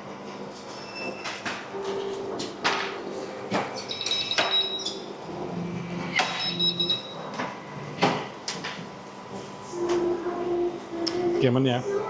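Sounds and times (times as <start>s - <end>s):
high electronic beeps: 3.9s - 5.0s, 6.2s - 7.2s.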